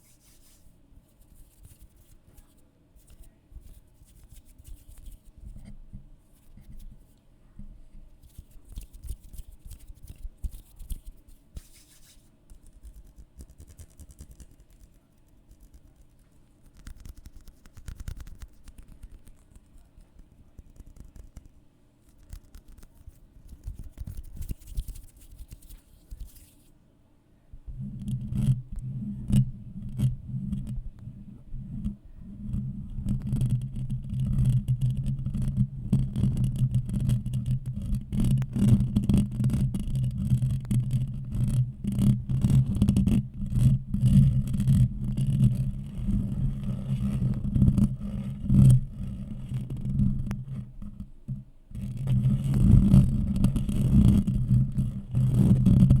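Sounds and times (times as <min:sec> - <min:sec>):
scratching and brushing crackles: 0:00.0 - 0:05.4, 0:08.2 - 0:26.7.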